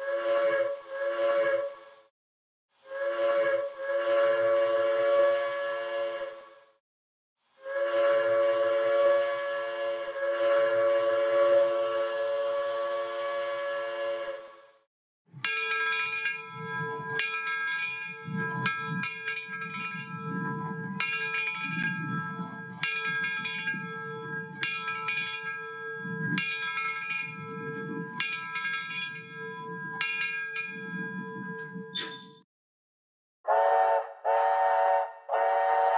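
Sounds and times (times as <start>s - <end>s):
steady locomotive whistle: 0.0s - 1.8s, 2.8s - 6.8s, 7.6s - 14.8s, 33.4s - 35.9s
steam locomotive bell ringing: 7.9s - 14.2s, 15.4s - 32.2s.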